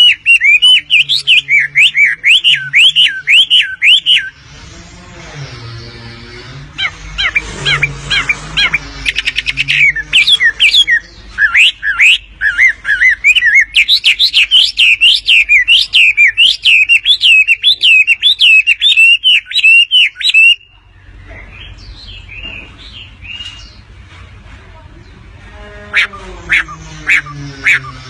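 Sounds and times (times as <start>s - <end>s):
bird chattering: 0.0s - 4.4s, 6.7s - 23.9s, 25.9s - 28.0s
bird whistling notes: 0.0s - 4.4s, 7.2s - 20.7s.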